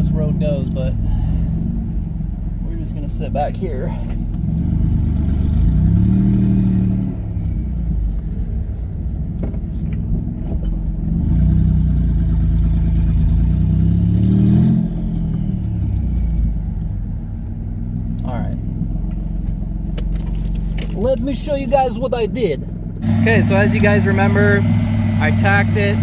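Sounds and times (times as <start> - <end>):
car engine accelerating: 0.0 - 26.0
turbos winding down: 23.0 - 26.0.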